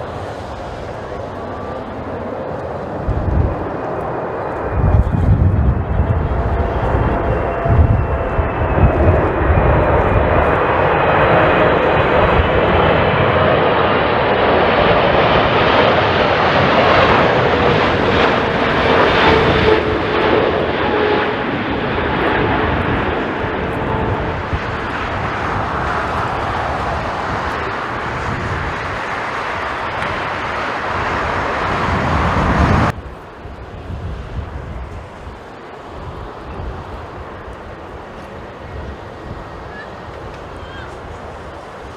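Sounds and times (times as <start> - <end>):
jet airliner engines whining: 0.0 - 41.9
wind buffeting microphone: 0.0 - 41.9.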